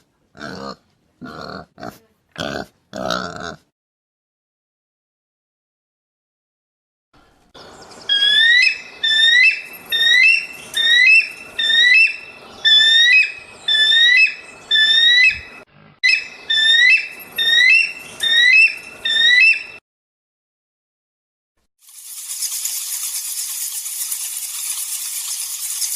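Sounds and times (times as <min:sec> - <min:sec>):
animal whistled squeals: 0:08.1 - 0:19.8.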